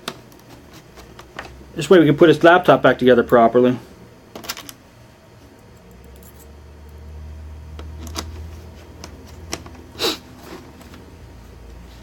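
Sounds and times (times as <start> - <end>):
scrape: 10.0 - 11.0.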